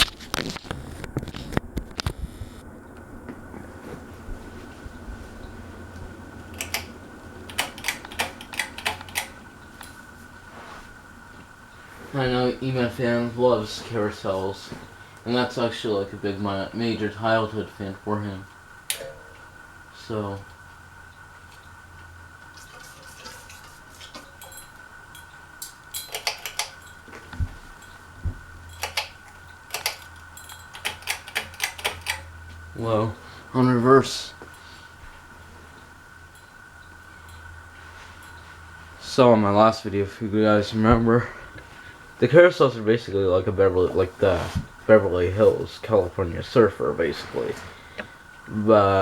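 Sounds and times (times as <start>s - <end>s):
ceiling fan humming: 0.0s - 49.0s
faint high whine: 0.0s - 49.0s
sharp clicks: 6.5s - 10.0s, 25.6s - 26.8s, 28.8s - 32.3s
metal pull chains clinking: 24.1s - 27.0s, 28.7s - 32.3s.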